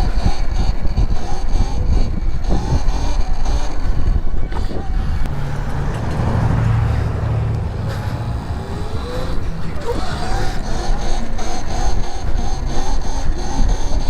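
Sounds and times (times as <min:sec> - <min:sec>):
low vehicle hum: 0:00.0 - 0:14.0
wind buffeting microphone: 0:00.0 - 0:14.0.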